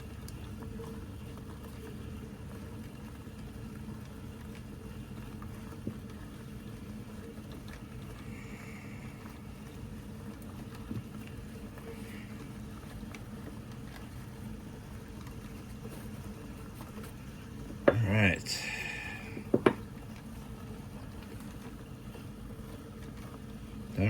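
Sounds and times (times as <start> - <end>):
steady low hum: 4.8 - 24.0
faint knocks: 19.4 - 19.8.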